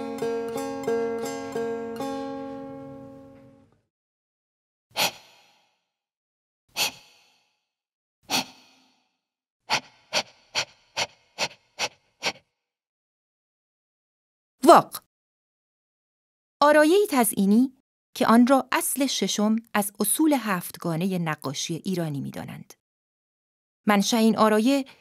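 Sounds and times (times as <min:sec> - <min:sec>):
plucked string chord: 0:00.0 - 0:03.8
short quick heh breaths: 0:05.0 - 0:05.8, 0:06.8 - 0:07.5, 0:08.3 - 0:09.0, 0:09.7 - 0:12.4
breathy exhales: 0:05.0 - 0:05.9, 0:06.7 - 0:07.6, 0:08.3 - 0:12.4.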